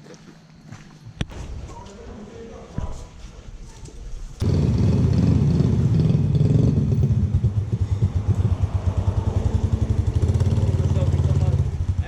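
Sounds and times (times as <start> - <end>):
motorbike engine idling: 4.4 - 12.0.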